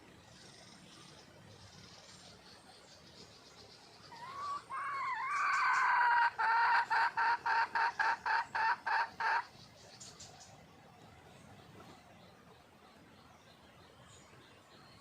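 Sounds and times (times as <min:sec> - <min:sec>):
hen clucking: 0:04.1 - 0:09.6.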